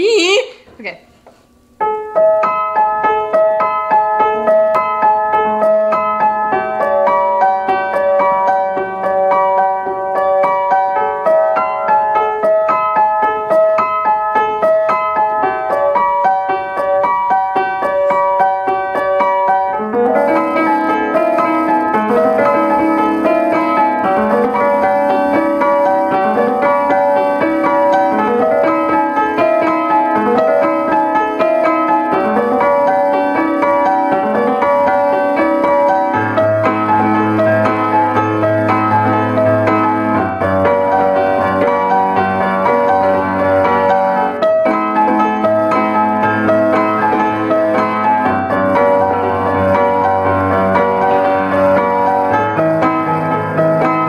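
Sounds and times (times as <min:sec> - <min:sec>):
piano melody: 0:01.6 - 0:54.0.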